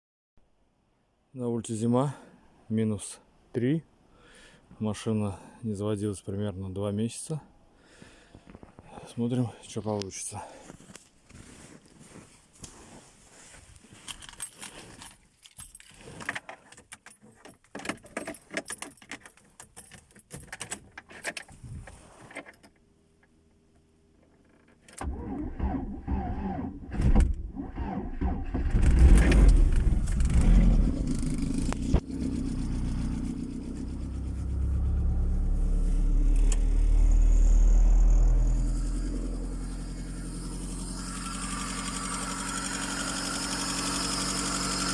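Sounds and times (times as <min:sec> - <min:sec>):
keys jangling: 0:13.9 - 0:21.3
car engine cranking and starting: 0:24.4 - 0:44.9.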